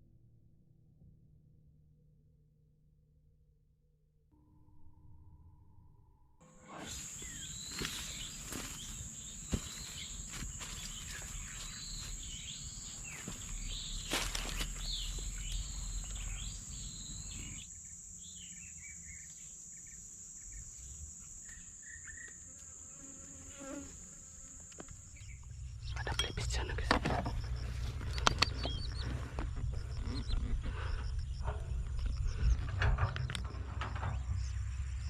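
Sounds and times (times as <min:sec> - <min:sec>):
insects droning: 0:06.4 - 0:35.0
short chirping calls: 0:06.8 - 0:17.7, 0:25.2 - 0:29.2.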